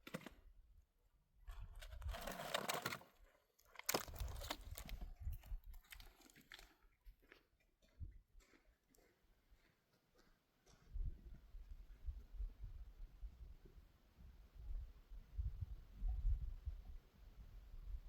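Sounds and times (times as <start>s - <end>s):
irregular crunching and crackling: 1.5s - 7.4s.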